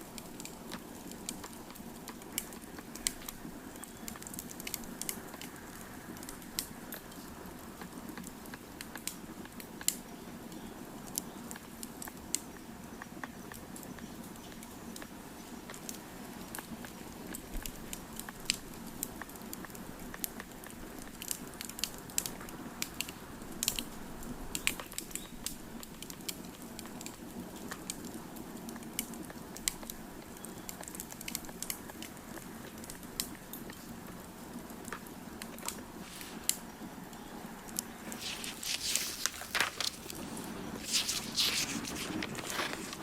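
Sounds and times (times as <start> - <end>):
low steady rush of fire: 14.6 - 43.0
wood fire crackling: 38.0 - 43.0.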